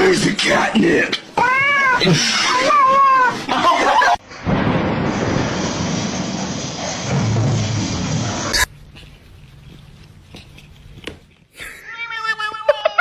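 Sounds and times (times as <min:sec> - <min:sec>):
cat meowing: 0:01.4 - 0:03.4, 0:11.8 - 0:13.0.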